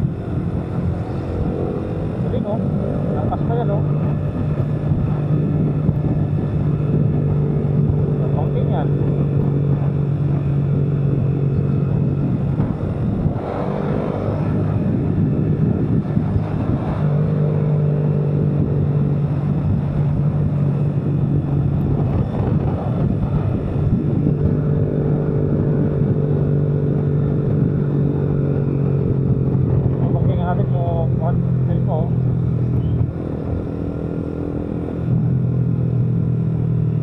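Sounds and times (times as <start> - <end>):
vehicle engine humming: 0.0 - 37.0
wind and road noise: 0.0 - 37.0.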